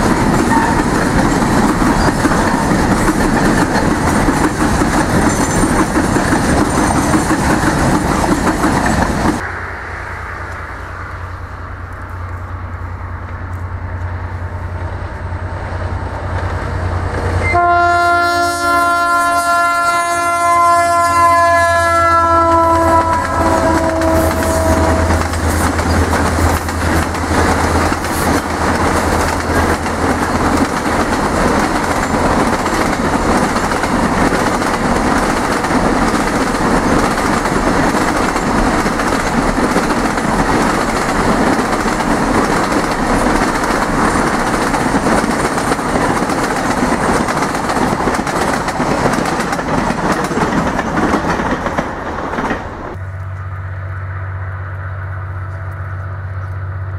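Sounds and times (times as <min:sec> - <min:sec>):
train wheels clickety-clack: 0:00.0 - 0:09.4, 0:22.4 - 0:53.0
locomotive engine drone: 0:00.0 - 0:19.2, 0:19.8 - 0:56.9
multi-note train horn: 0:15.3 - 0:25.6.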